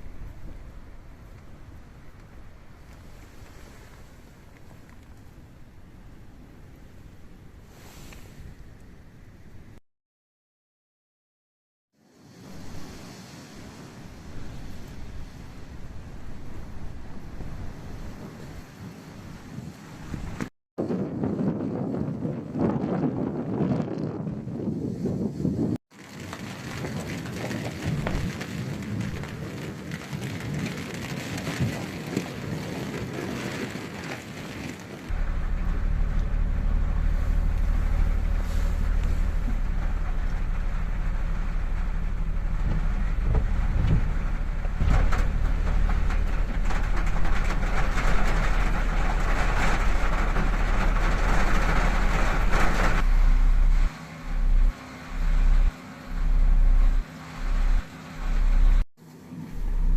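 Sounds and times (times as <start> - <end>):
rain falling: 0.0 - 7.9, 12.4 - 20.5, 25.9 - 58.8, 59.4 - 59.9
car engine humming: 35.1 - 59.9.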